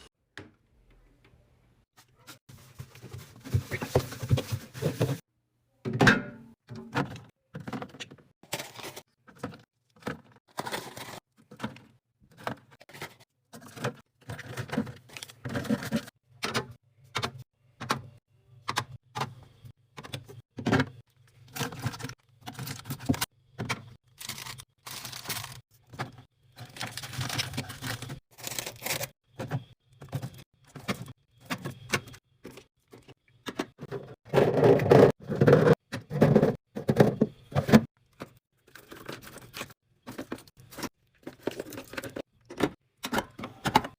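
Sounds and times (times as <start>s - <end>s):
packaging rustling: 10.5s - 11.2s, 24.1s - 25.6s, 26.6s - 29.1s.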